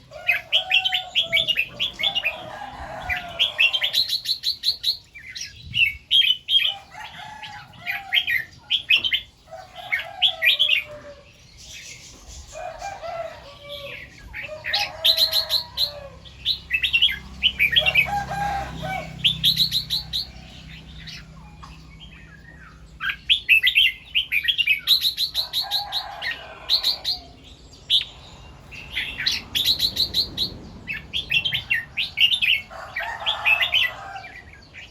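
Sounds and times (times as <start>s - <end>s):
bird singing warbled phrases: 18.7s - 34.9s.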